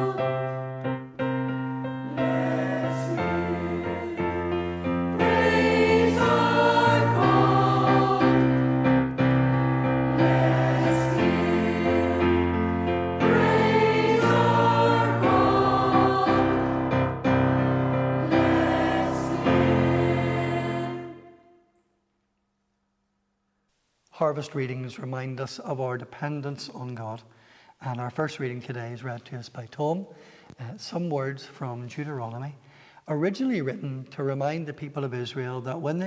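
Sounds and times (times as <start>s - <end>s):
choir singing: 0.0s - 1.1s, 1.7s - 21.7s
piano accompaniment: 0.0s - 21.4s.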